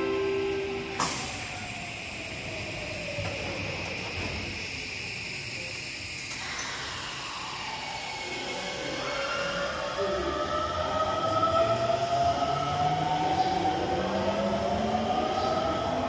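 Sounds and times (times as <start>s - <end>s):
train doors closing: 0.0s - 7.8s
high hum and hiss of train: 0.0s - 16.0s.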